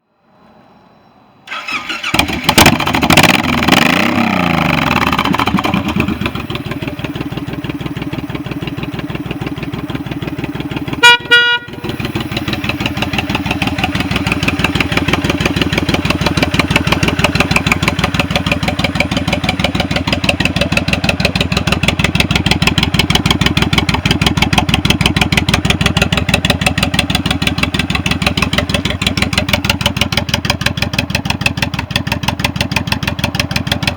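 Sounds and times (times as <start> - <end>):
motorcycle engine starting and idling: 1.5 - 33.9
horn: 11.0 - 11.9.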